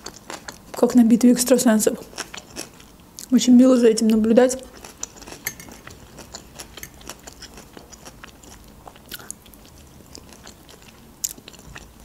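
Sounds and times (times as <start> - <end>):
wet mouth clicks chewing: 4.1 - 11.9.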